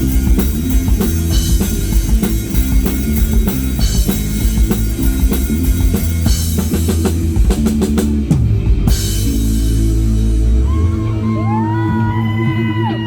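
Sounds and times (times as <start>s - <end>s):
drum fill: 0.0s - 11.0s
rock band playing: 0.0s - 13.0s.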